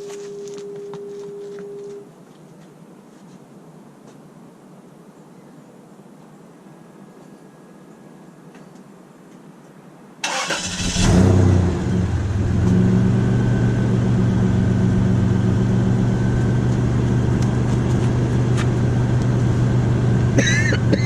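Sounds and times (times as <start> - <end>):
car engine starting and idling: 10.2 - 20.4.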